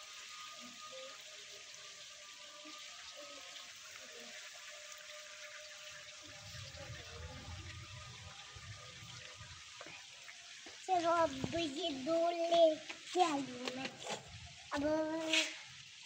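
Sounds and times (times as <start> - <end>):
rain hissing: 0.0 - 16.0
low rumble on the microphone: 6.2 - 10.1.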